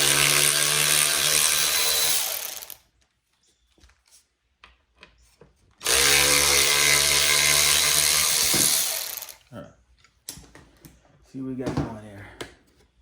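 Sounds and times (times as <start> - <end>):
power drill motor running: 0.0 - 2.8, 5.8 - 9.4.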